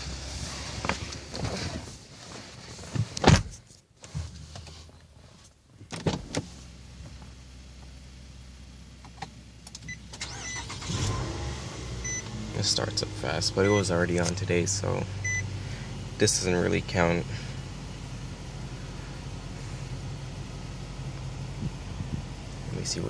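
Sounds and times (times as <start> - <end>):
car engine starting and idling: 0.0 - 3.2, 5.7 - 23.0
short electronic beeps: 12.0 - 12.3, 15.2 - 15.4.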